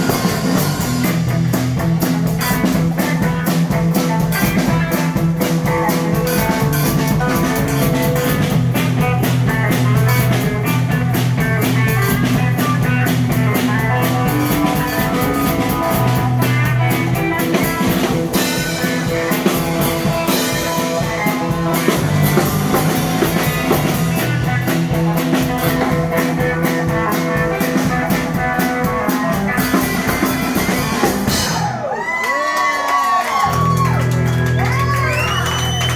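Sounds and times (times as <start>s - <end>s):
electric guitar: 0.0s - 32.2s, 33.3s - 35.9s
blues band playing: 0.0s - 35.9s.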